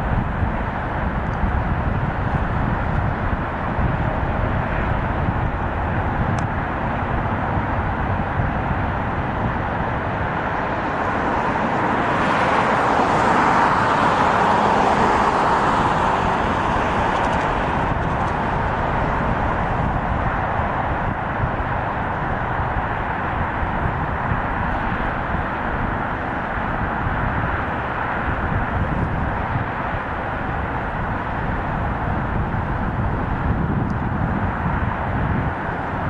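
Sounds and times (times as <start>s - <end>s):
freight train rumbling past: 9.1s - 23.0s.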